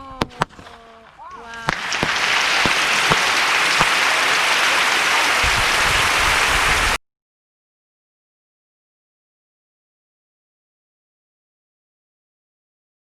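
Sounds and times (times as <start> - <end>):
firework pops: 0.0 - 6.0
firework hissing and crackling: 0.2 - 7.0.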